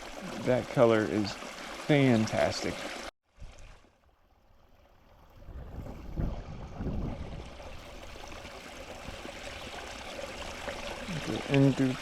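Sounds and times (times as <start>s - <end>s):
creek water running: 0.0s - 12.0s
low rumbling on microphone: 5.3s - 7.9s.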